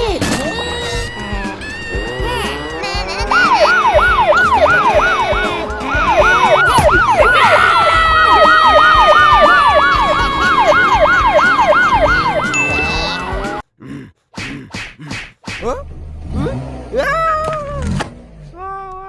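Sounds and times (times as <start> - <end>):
police siren yelping: 1.0 - 13.6.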